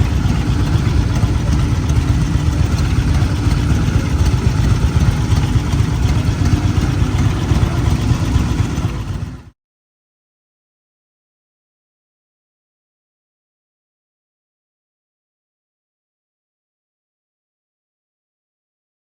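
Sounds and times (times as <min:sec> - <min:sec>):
road noise: 0:00.0 - 0:09.5
vehicle engine rumble: 0:00.0 - 0:09.5.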